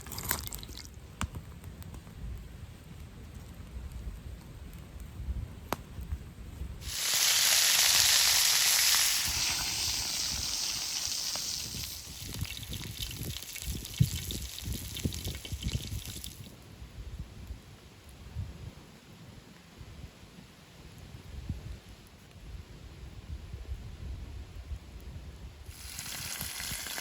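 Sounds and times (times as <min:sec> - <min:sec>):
crackling and popping: 0:00.0 - 0:06.2, 0:06.8 - 0:16.6
meat sizzling over campfire: 0:06.8 - 0:16.6, 0:25.7 - 0:27.0.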